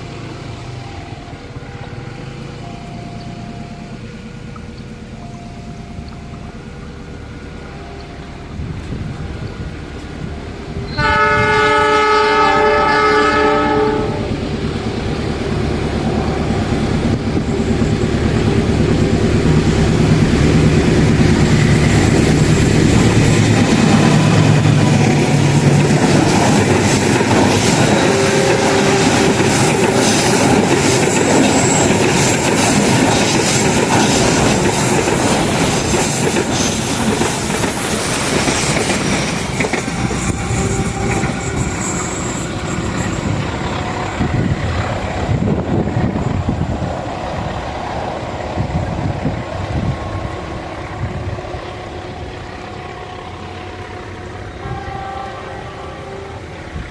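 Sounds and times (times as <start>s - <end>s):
diesel locomotive horn: 0.0s - 37.7s, 38.3s - 46.7s, 48.6s - 56.9s
locomotive engine passing: 0.0s - 56.9s
train wheels clattering over rail joints: 14.8s - 47.4s.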